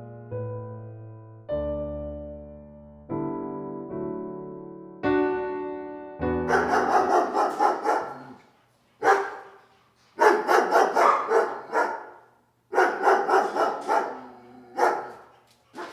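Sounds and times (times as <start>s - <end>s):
dog barking: 6.5s - 15.9s.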